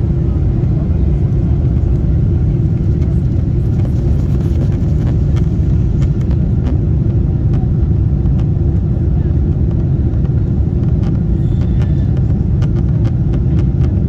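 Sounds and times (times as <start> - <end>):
rushing air in cabin: 0.0 - 8.2
aircraft engines rumbling: 0.0 - 14.0
constant hum: 0.0 - 14.0.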